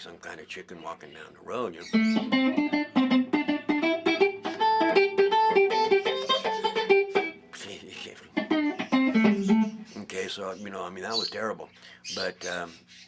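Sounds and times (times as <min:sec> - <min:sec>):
electric guitar plucked notes: 0:01.9 - 0:07.5, 0:08.3 - 0:09.9.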